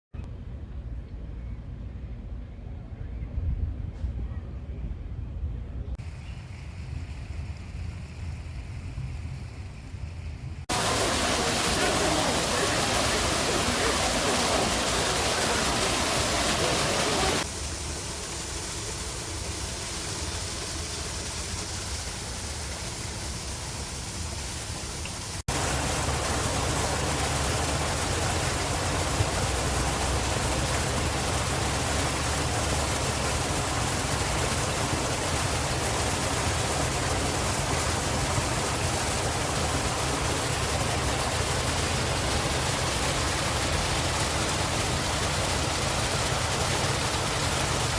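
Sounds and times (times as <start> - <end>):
steady rushing noise: 10.6 - 47.9.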